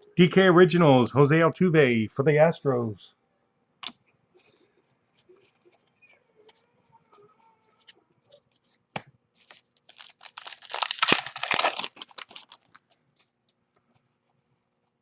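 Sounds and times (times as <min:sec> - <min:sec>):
wrapper tearing and crinkling: 0:09.5 - 0:12.9.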